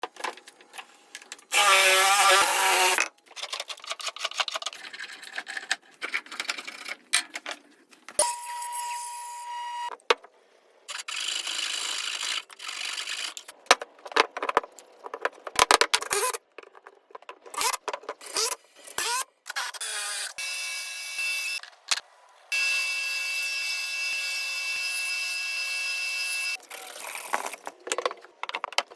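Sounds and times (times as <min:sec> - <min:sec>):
power tool motor whine: 0:01.5 - 0:03.0, 0:19.8 - 0:21.6, 0:22.5 - 0:26.6.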